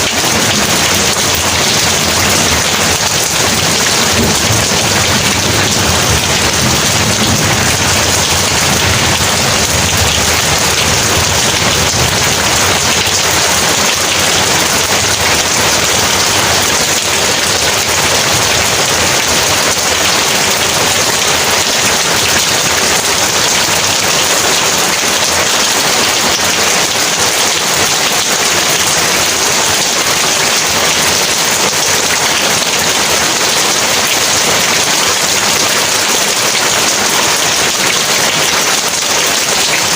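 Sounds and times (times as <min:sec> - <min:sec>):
heavy rain: 0:00.0 - 0:39.9
low thunder rumble: 0:03.4 - 0:13.8.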